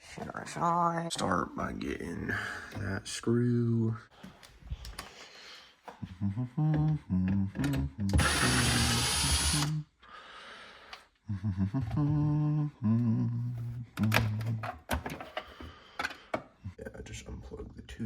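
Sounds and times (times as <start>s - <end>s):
cordless drill motor whining: 8.1s - 9.8s.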